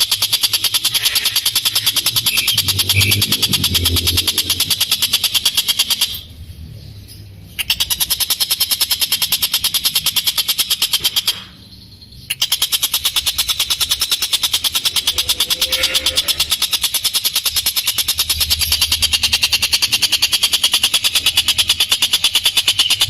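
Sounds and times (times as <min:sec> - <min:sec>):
kingfisher harsh chattering call: 0:00.0 - 0:06.2, 0:12.3 - 0:23.0.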